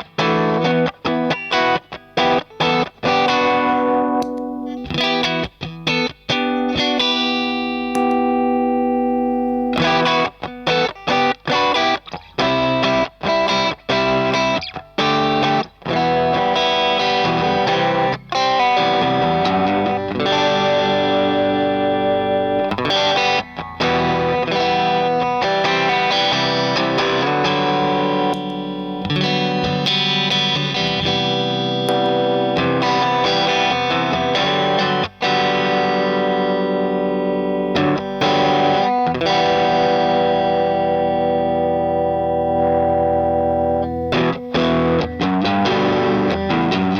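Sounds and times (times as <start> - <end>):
distorted electric guitar chords: 0.0 - 46.9.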